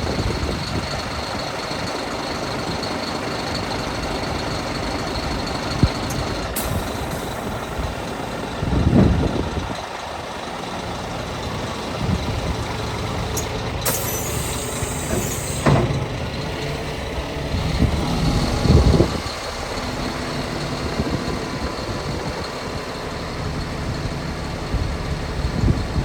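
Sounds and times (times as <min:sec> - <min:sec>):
diesel truck engine running: 0:00.0 - 0:26.0
compressed air hiss: 0:06.5 - 0:08.5, 0:13.8 - 0:15.8.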